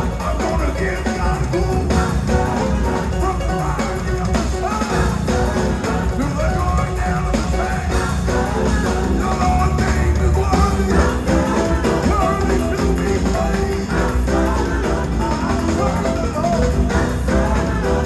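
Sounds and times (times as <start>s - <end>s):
heavy bass line: 0.0s - 18.0s
live gospel band playing: 0.0s - 18.0s
person singing: 0.0s - 18.0s.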